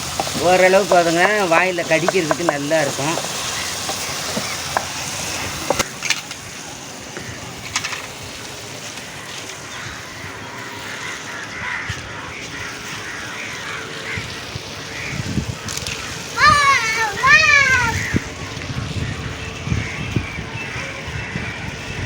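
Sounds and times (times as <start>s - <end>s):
vegetables sizzling in a pan: 0.0s - 11.8s, 12.6s - 18.2s.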